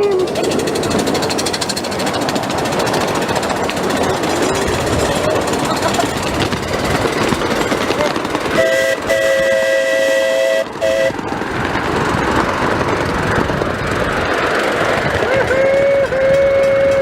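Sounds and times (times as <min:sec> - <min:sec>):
locomotive rushing noise: 0:00.0 - 0:17.0
steam locomotive chime whistle: 0:08.6 - 0:11.2, 0:15.4 - 0:17.0.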